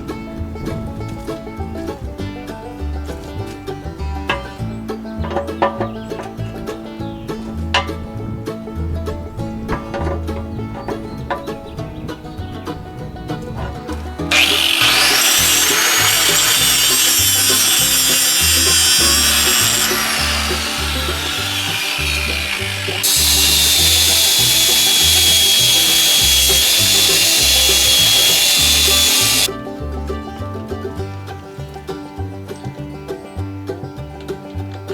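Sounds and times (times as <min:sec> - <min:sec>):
angle grinder grinding steel: 0:14.3 - 0:29.5.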